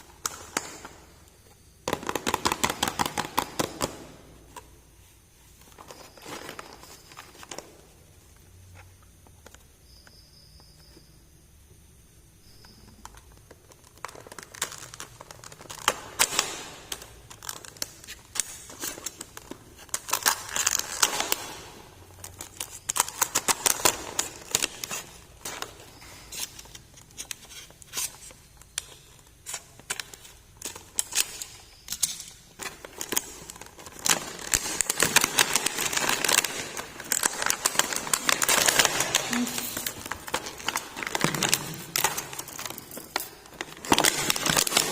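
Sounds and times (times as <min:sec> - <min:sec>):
clicks and rustles of handling: 0:12.6 - 0:44.9
plastic packaging crinkling: 0:13.0 - 0:44.9.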